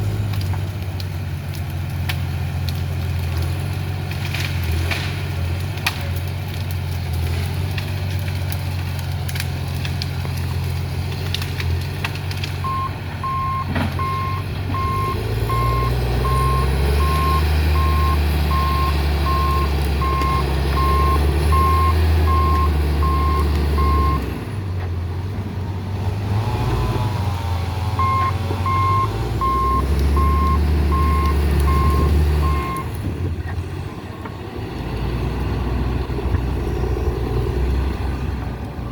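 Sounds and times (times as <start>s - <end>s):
diesel engine running: 0.0s - 38.9s
reversing alarm beeping: 12.6s - 24.2s, 28.0s - 32.9s.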